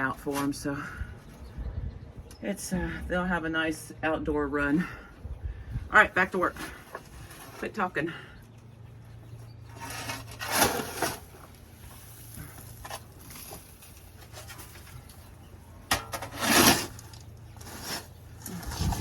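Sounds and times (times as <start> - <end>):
shovel scraping manure: 9.6 - 15.3, 15.9 - 19.0.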